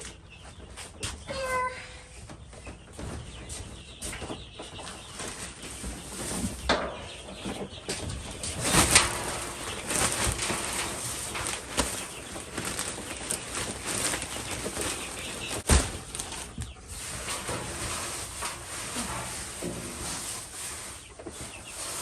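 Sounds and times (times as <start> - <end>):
chickens clucking: 0.0 - 22.0
rustling: 7.4 - 22.0
wings flapping: 8.3 - 19.1.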